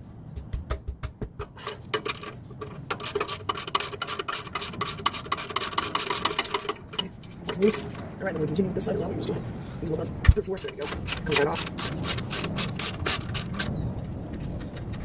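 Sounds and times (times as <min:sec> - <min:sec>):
ratchet wrench clicking: 0:01.6 - 0:07.1, 0:10.6 - 0:13.7.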